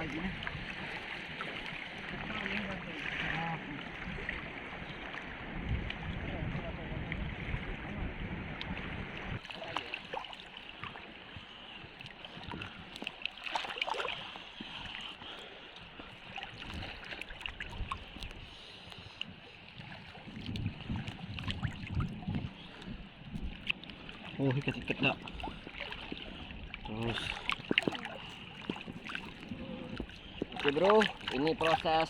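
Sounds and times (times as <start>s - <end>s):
wind on microphone: 0.0s - 9.4s, 16.4s - 32.0s
seawater sloshing and splashing: 0.0s - 32.0s.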